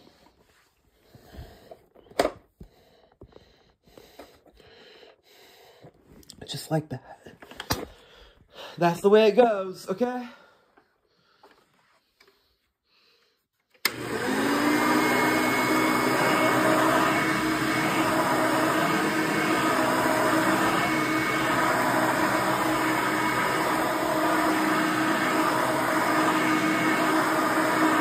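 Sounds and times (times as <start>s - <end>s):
vacuum cleaner switch click: 13.8s - 14.6s
vacuum cleaner motor running: 13.8s - 28.0s.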